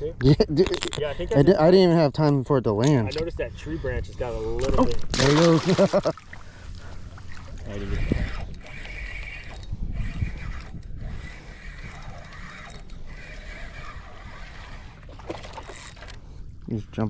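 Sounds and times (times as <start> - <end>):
fishing reel whirring: 3.6 - 16.6.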